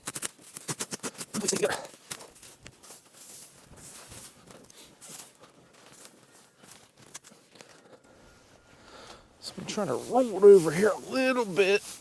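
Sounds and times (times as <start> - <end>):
small irregular clicks: 0.0 - 2.8
hay and plastic wrap rustling: 0.3 - 8.8, 9.4 - 12.0.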